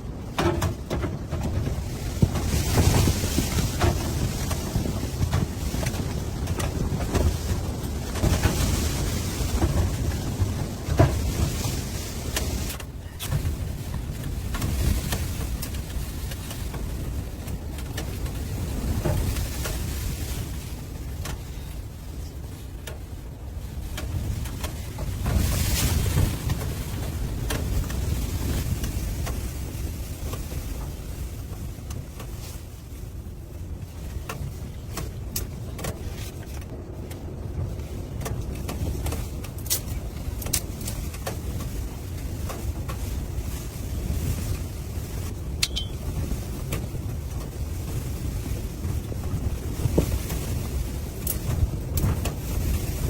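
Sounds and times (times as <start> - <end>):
blizzard wind gusting: 0.0 - 53.0
sharp clicks and ticks: 45.6 - 46.0.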